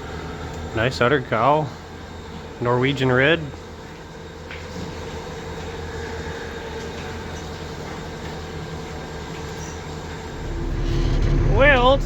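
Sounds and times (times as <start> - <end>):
machine drone: 10.2 - 12.0.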